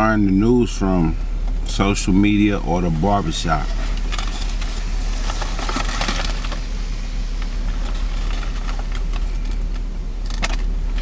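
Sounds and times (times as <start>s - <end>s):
car engine idling: 0.0s - 11.0s
crackles of handling: 3.5s - 6.7s, 7.4s - 11.0s.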